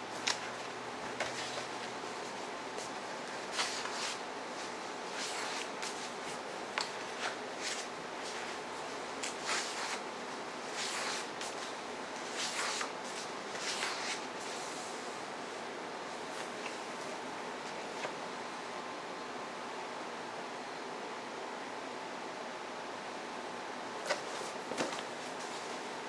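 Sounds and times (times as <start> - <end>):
book pages rustling: 0.2 - 10.0, 10.6 - 15.0, 24.0 - 25.9.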